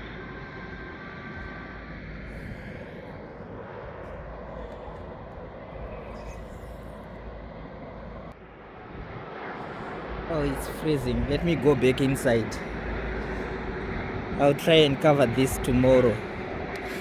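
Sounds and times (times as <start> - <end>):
distant jet aircraft rumble: 0.0 - 17.0.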